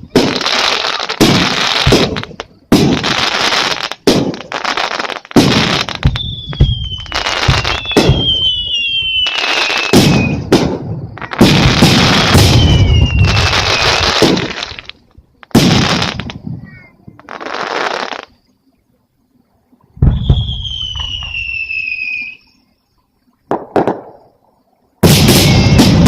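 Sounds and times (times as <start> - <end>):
fireworks bursting: 0.0 - 18.4, 20.0 - 22.6, 23.5 - 24.4, 25.0 - 26.0
firework whistle falling in pitch: 6.0 - 10.5, 12.2 - 14.2, 20.0 - 22.6, 25.0 - 26.0.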